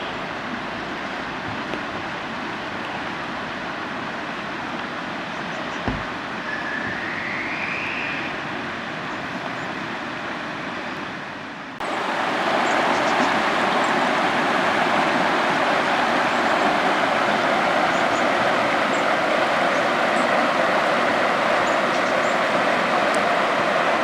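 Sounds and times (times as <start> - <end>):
steady rushing noise: 11.2 - 24.0.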